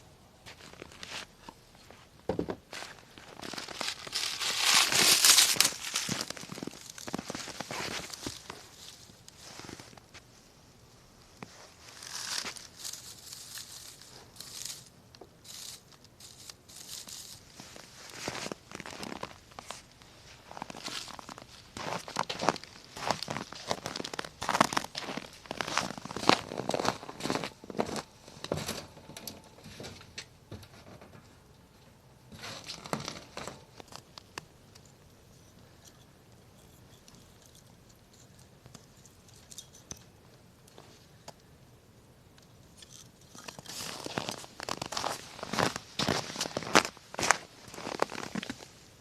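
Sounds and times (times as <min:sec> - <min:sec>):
campfire crackling: 0:02.7 - 0:30.4.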